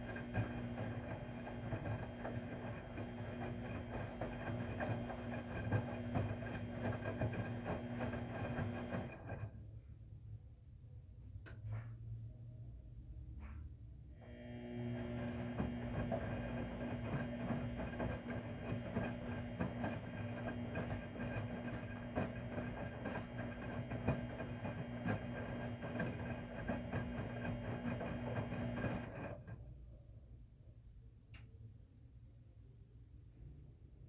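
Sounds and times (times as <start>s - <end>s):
washing machine drum turning: 0.0s - 9.2s, 14.9s - 29.2s.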